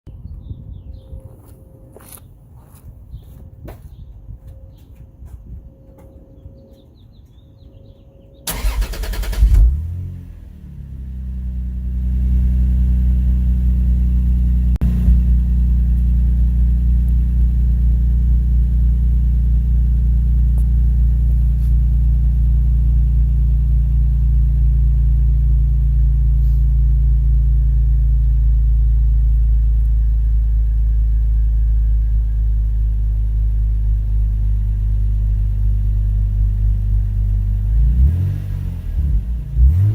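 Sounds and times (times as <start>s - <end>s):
car engine idling: 8.5s - 39.9s.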